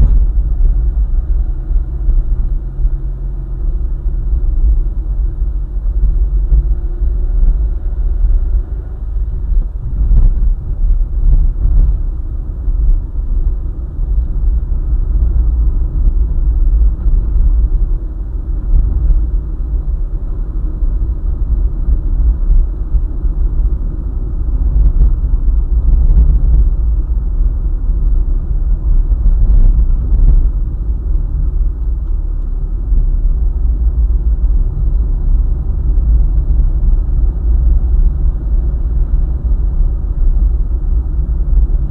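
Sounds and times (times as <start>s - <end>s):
car engine: 0.0s - 41.9s
tyres rumbling on road: 0.0s - 41.9s.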